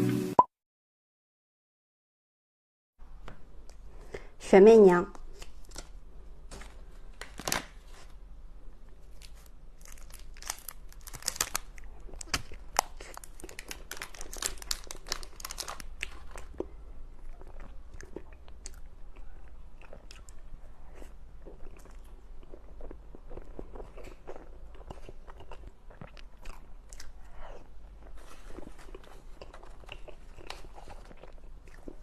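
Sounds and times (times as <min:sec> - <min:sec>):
close-miked chewing: 0:09.2 - 0:32.0.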